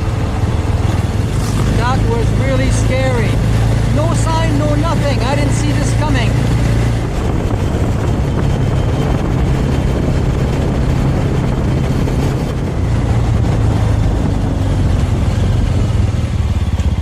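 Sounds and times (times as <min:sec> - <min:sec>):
motorcycle engine cruising: 0:00.0 - 0:17.0
wind noise: 0:00.0 - 0:17.0.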